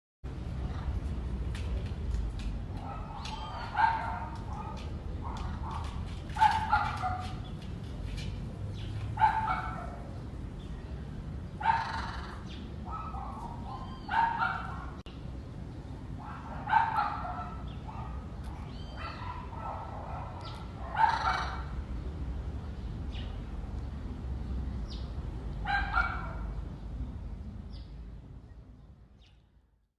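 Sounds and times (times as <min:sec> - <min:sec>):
parrots squawking: 0:11.7 - 0:13.1, 0:20.5 - 0:21.7.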